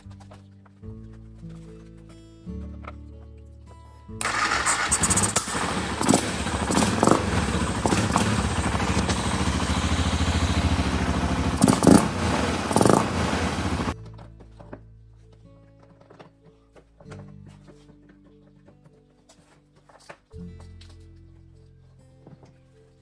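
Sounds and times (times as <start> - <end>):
motorcycle engine running: 4.2 - 14.0.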